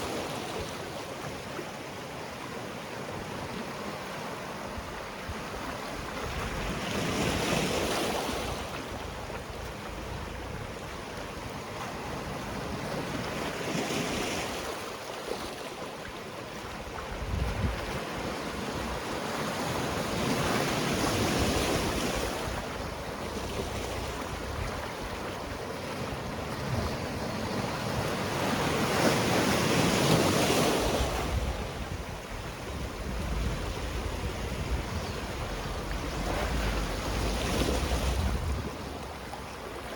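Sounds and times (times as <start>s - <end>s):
sea waves on rocky shore: 0.0s - 39.9s
wind on microphone: 4.7s - 14.6s, 16.6s - 39.9s.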